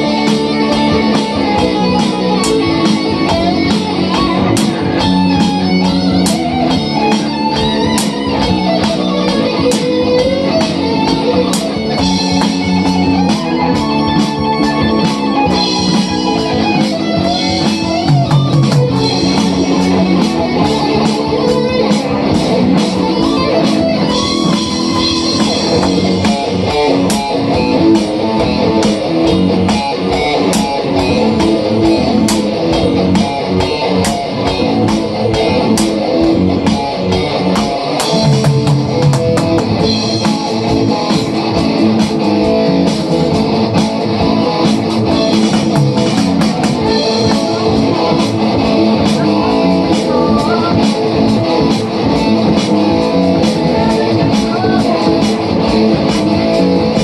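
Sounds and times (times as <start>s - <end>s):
electric guitar fast runs: 0.0s - 57.0s
hard rock music: 0.0s - 57.0s.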